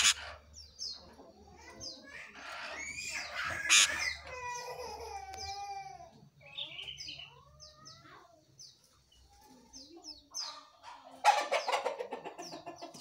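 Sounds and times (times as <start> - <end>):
fast clucking bird call: 0.0 - 0.5, 2.4 - 4.5, 11.2 - 13.0.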